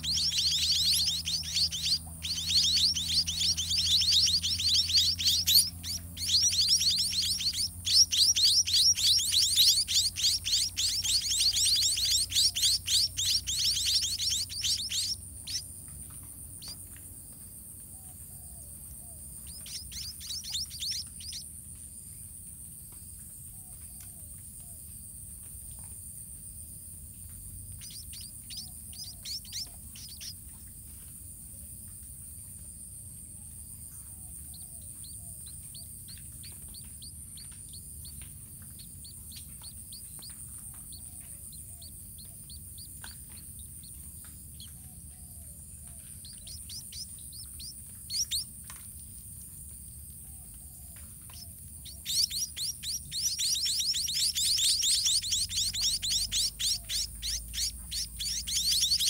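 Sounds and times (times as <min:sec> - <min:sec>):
steady high hiss: 0:00.0 - 0:16.8, 0:51.2 - 0:59.0
small birds chirping: 0:00.0 - 0:59.0.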